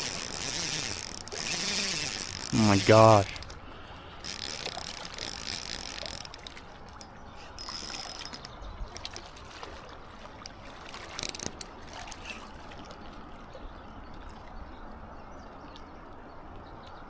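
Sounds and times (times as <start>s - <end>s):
fishing reel clicking: 0.0s - 3.6s, 4.2s - 6.6s, 7.6s - 8.5s.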